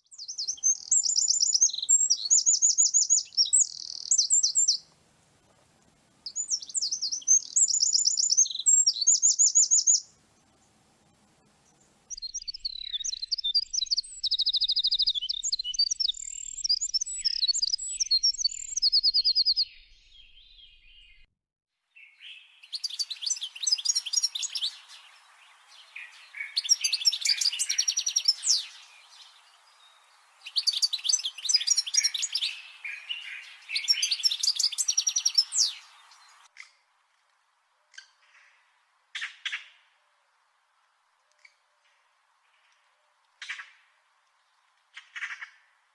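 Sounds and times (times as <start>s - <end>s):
bird song phrases: 0.0s - 4.9s, 6.3s - 10.8s, 11.4s - 21.3s, 21.9s - 36.7s
songbird twittering trills: 0.0s - 4.9s, 6.2s - 10.6s, 11.4s - 21.3s, 22.0s - 36.6s
faint steady hiss: 0.0s - 19.0s, 21.9s - 45.9s.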